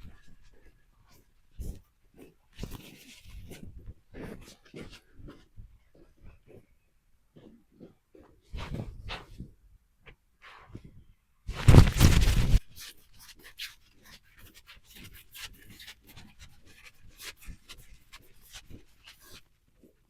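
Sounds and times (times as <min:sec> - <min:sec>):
small scratching and rustling: 0:00.0 - 0:09.6, 0:10.4 - 0:20.0
loud rustle: 0:11.5 - 0:12.6.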